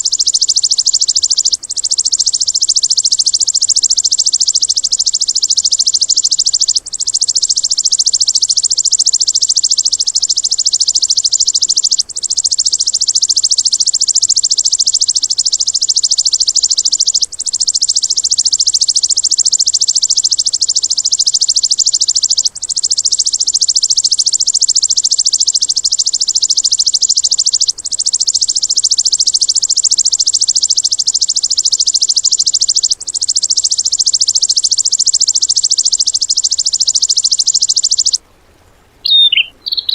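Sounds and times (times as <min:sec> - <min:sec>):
bird buzzing trill: 0:00.0 - 0:38.2, 0:39.0 - 0:39.9.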